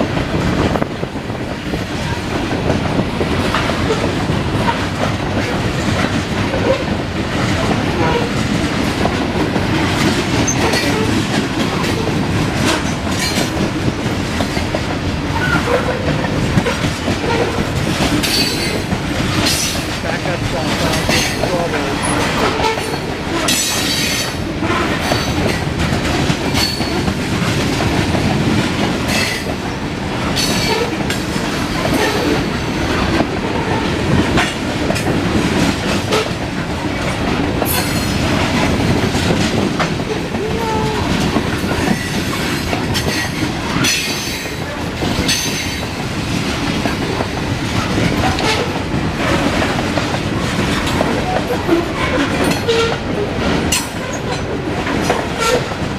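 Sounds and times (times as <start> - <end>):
steel wheels clacking over rail joints: 0.0 - 55.9
train cars rolling past: 0.0 - 55.9.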